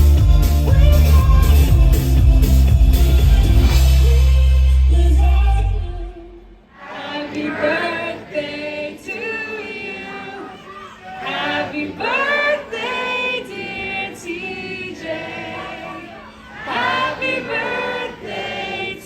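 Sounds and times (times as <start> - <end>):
voices singing in harmony: 5.1 - 19.0.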